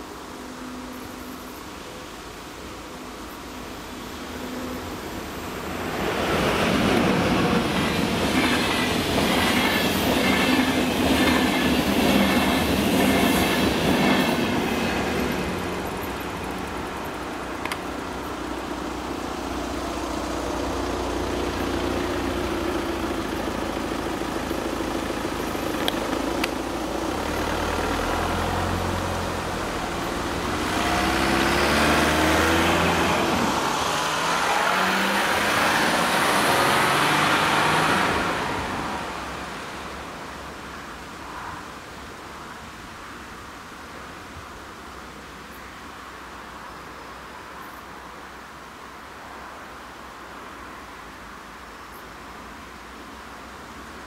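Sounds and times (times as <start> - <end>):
train passing fast: 4.1 - 41.6.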